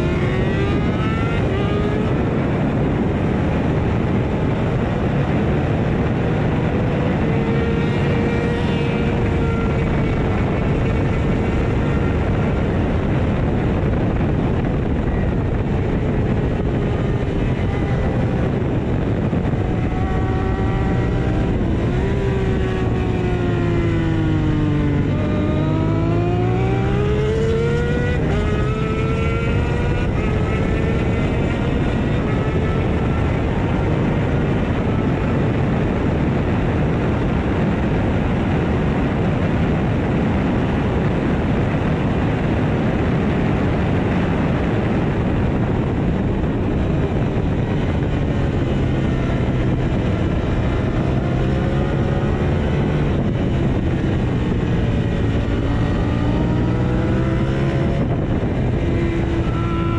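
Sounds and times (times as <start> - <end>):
motorcycle engine at speed: 0.0 - 59.9
wind noise: 0.0 - 59.9.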